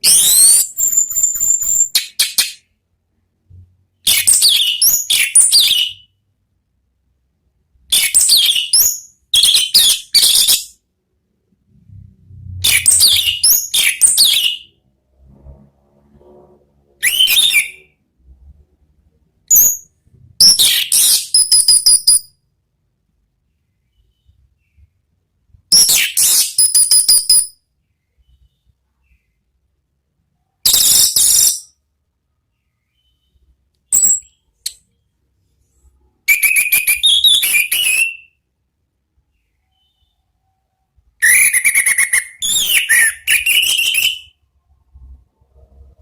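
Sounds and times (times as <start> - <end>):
thrush singing whistles and trills: 0.0 - 2.6, 12.6 - 14.7, 17.0 - 18.0, 25.7 - 27.5, 30.6 - 31.7, 36.3 - 38.4, 41.2 - 44.4.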